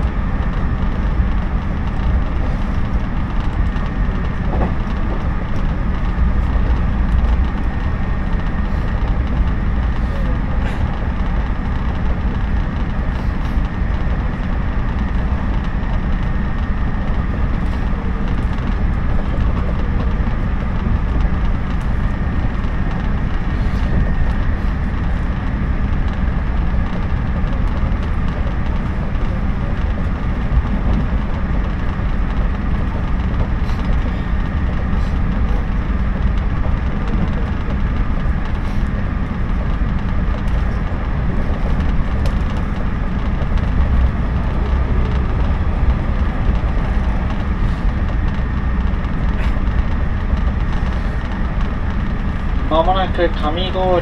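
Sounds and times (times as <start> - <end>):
train cabin rumble: 0.0 - 54.0.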